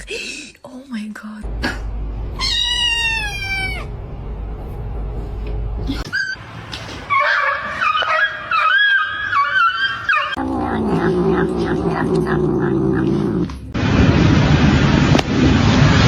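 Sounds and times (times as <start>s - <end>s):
pet crying: 2.4s - 3.9s.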